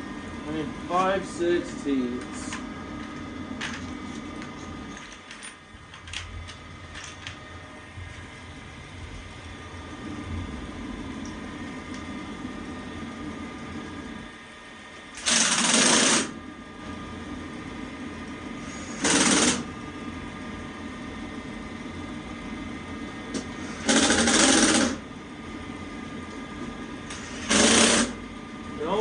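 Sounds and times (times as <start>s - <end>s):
power driver driving screws: 18.9s - 19.6s, 27.1s - 28.2s.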